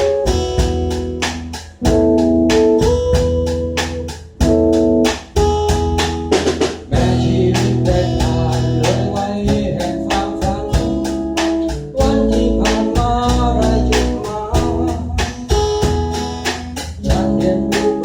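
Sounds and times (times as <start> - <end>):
organ-like chords: 0.0 - 15.6, 16.5 - 18.0
drum beat: 0.0 - 18.0
electric guitar: 0.0 - 18.0
person singing: 6.9 - 16.0, 17.0 - 18.0.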